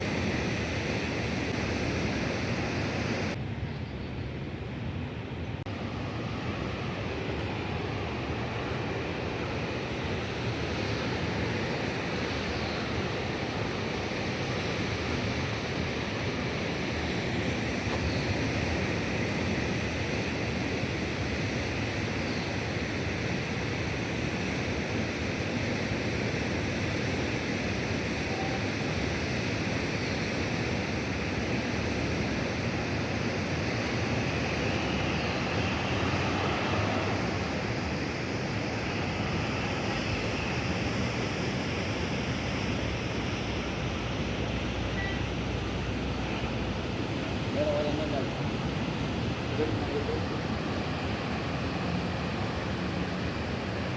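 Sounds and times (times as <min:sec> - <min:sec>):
wind: 0:00.0 - 0:53.9
road traffic rushing: 0:04.3 - 0:21.2, 0:31.2 - 0:53.9.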